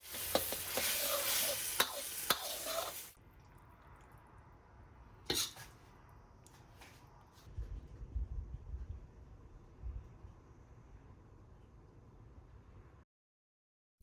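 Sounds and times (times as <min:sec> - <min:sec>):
food sizzling in a wok: 0:00.0 - 0:03.2.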